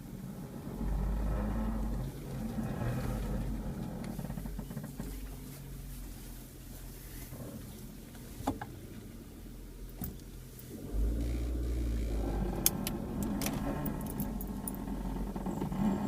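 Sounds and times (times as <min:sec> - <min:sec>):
car engine rumble: 0:00.0 - 0:16.0
car creaking and clicking: 0:01.8 - 0:05.5, 0:10.9 - 0:16.0.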